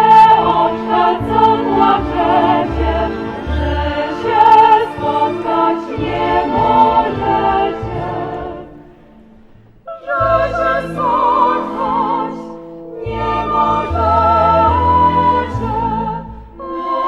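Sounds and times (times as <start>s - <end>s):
women singing folk song: 0.0s - 9.0s, 9.9s - 17.0s.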